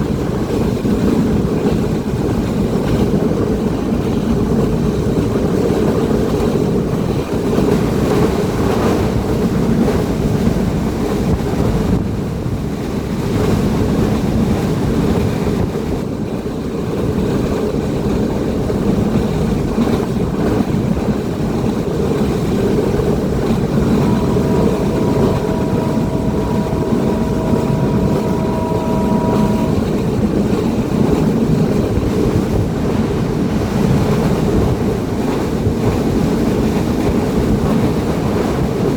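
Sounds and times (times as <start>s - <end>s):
train rumbling: 0.0s - 38.9s
faint two-note tone: 23.4s - 30.6s.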